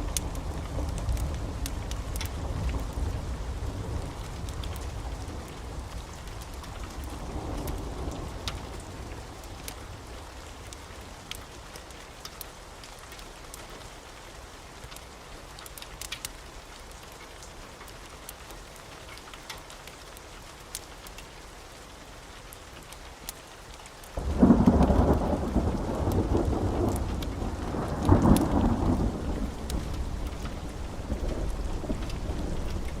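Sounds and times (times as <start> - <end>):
low rumble of thunder: 0.0 - 11.0, 24.2 - 33.0
rain drops ticking: 0.0 - 33.0
steady rain falling: 0.0 - 33.0.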